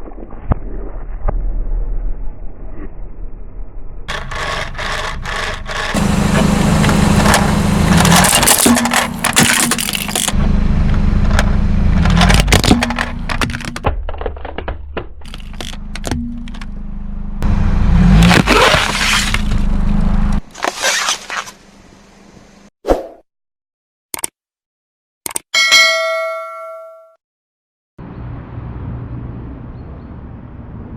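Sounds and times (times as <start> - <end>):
tyres crushing brittle objects: 4.1 - 10.4, 11.3 - 16.7, 18.1 - 19.8, 20.4 - 21.6
car engine droning: 4.1 - 20.6.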